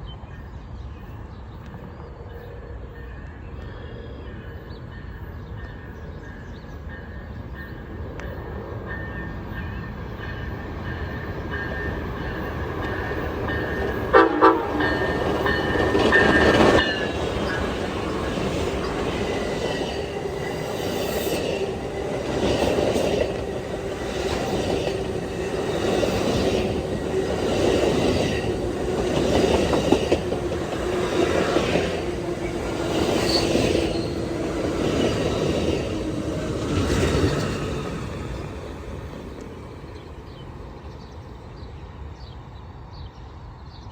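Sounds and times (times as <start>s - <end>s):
train rumbling past: 0.1s - 43.9s
train horn: 13.6s - 17.1s.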